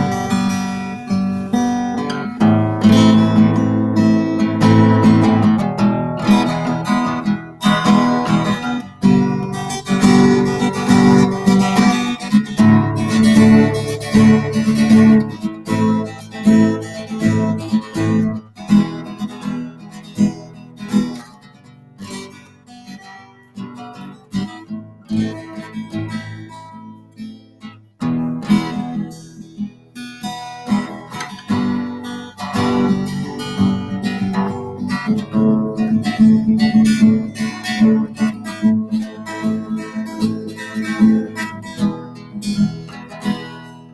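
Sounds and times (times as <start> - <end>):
acoustic guitar strumming: 0.0 - 43.9.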